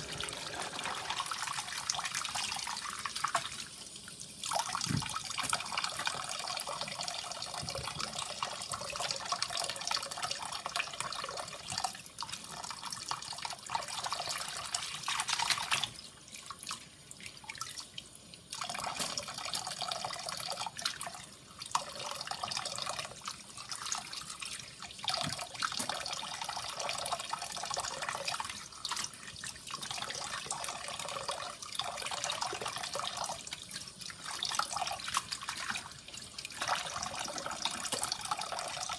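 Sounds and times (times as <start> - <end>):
tap water splashing into bowl: 25.1 - 26.2, 36.5 - 38.7.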